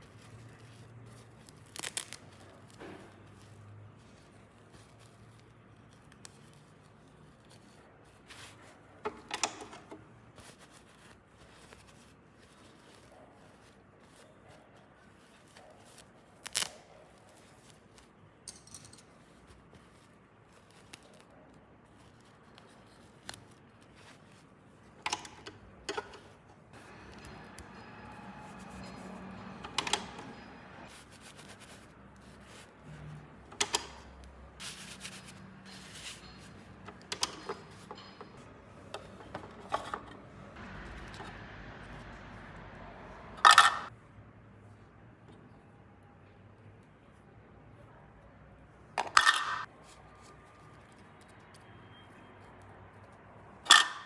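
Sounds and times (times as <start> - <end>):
soft rustle: 0.0 - 9.0, 10.1 - 18.4, 19.0 - 25.0, 30.9 - 33.2, 34.2 - 36.8.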